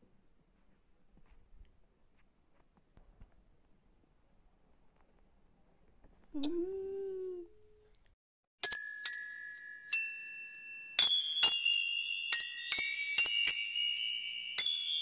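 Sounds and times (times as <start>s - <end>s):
high metallic chimes: 8.6s - 15.0s.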